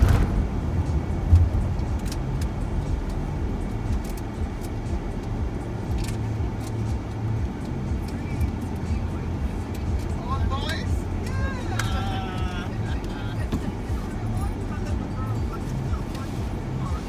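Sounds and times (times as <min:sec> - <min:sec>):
faint knocks and rattles: 0:00.0 - 0:10.2
road and engine rumble: 0:00.0 - 0:17.0.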